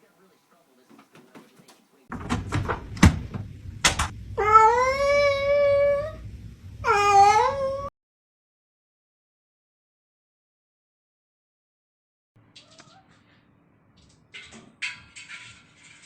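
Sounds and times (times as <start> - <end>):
cat meowing: 4.4 - 6.2, 6.8 - 7.9.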